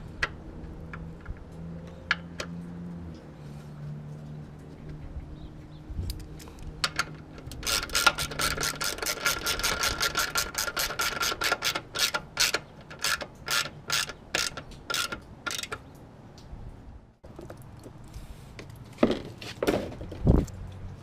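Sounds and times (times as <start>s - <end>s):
ratchet clicking: 6.8s - 15.8s.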